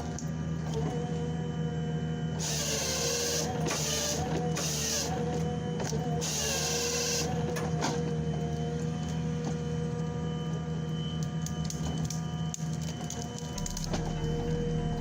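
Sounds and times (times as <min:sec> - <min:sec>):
machinery humming: 0:08.2 - 0:15.0.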